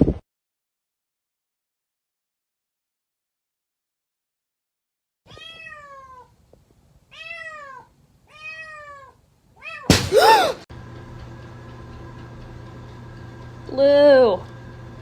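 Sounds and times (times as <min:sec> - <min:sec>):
cat meowing: 0:05.3 - 0:06.4, 0:07.1 - 0:09.9.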